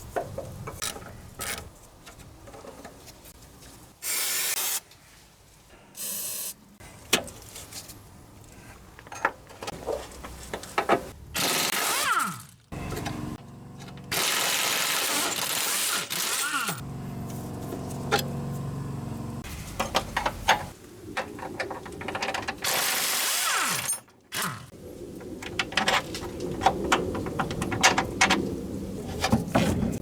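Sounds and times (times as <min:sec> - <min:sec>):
hand tools clicking and knocking: 0:00.0 - 0:03.2, 0:19.7 - 0:30.0.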